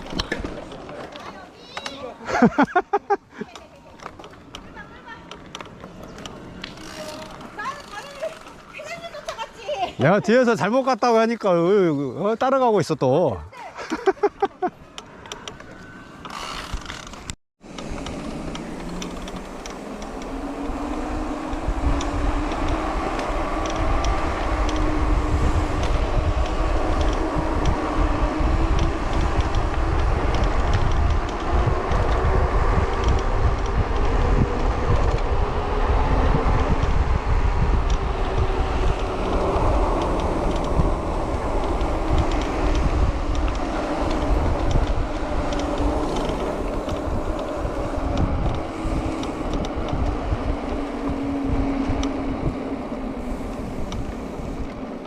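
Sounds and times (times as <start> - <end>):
wind buffeting microphone: 16.7 - 55.0.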